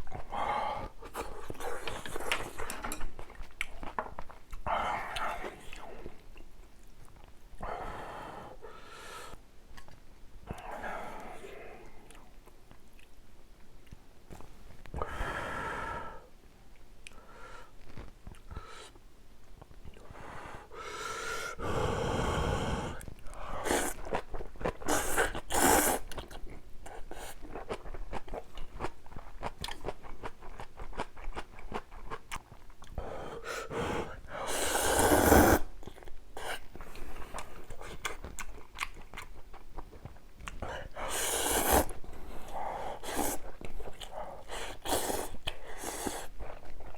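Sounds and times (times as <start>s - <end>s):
noodles slurped: 34.5s - 35.7s, 40.8s - 46.7s
wet chewing: 35.1s - 46.9s.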